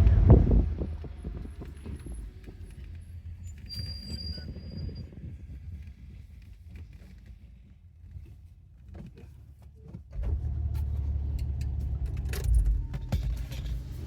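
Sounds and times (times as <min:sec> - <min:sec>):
car engine starting and idling: 0:00.0 - 0:03.0, 0:10.1 - 0:14.0.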